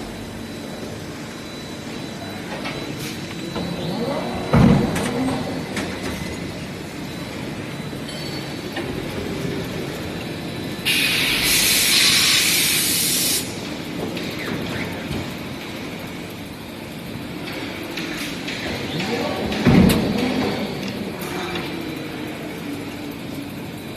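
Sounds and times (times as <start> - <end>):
industrial machinery running: 0.0 - 23.9
loud hiss of escaping air: 10.9 - 13.5.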